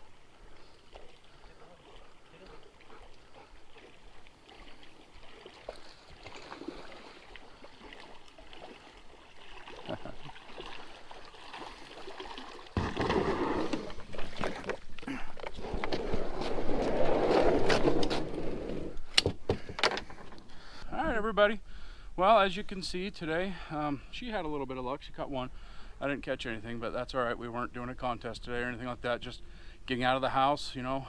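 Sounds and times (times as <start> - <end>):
water splashing around a kayak: 0.0 - 19.7.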